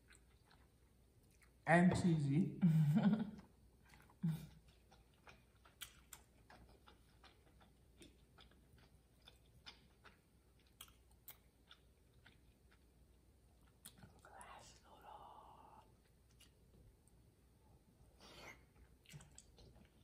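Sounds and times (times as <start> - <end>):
wet mouth chewing clicks: 3.9 - 12.9, 19.0 - 20.0.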